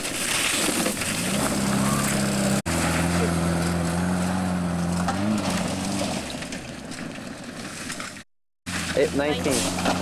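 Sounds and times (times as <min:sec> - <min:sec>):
car engine running and revving: 0:01.3 - 0:07.6.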